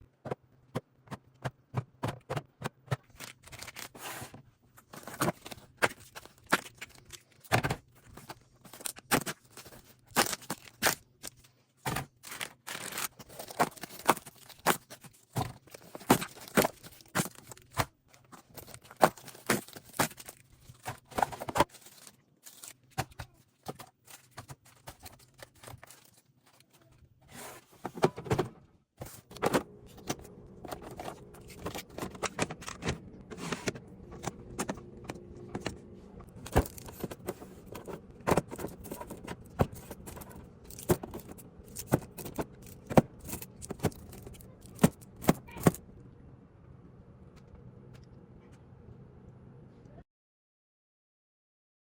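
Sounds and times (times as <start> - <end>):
packaging tearing and rustling: 3.1 - 4.3, 12.0 - 17.8, 18.5 - 23.0, 23.7 - 26.8, 29.0 - 45.7.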